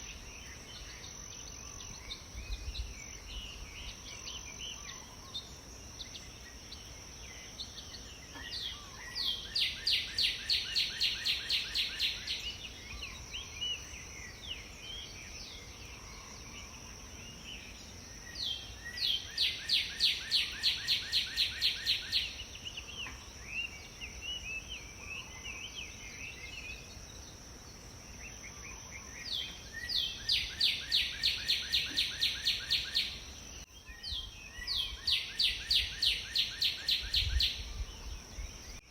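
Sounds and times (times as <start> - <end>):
songbird trilling: 18.5 - 26.9, 28.8 - 33.2.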